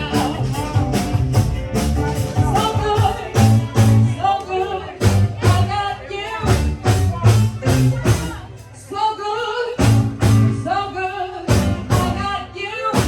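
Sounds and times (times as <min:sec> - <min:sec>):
bass line: 0:00.0 - 0:13.0
drum kit beat: 0:00.0 - 0:13.0
person singing: 0:00.0 - 0:13.0.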